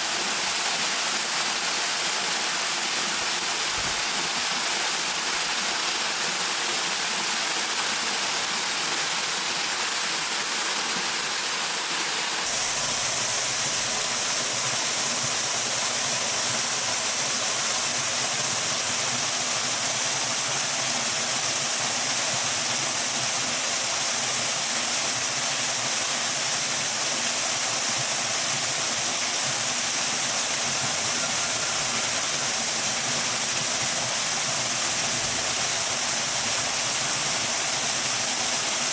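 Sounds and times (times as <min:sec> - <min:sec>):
waterfall rushing: 0:29.2 - 0:38.9.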